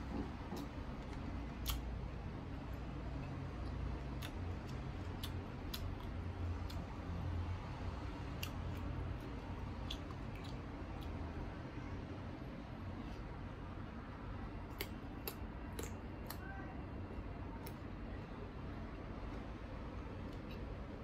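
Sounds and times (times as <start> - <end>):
low steady hum: 0.0 - 21.0
crunchy chewing: 3.6 - 6.9, 8.2 - 11.2, 14.6 - 16.4
mouth clicks: 9.7 - 11.2.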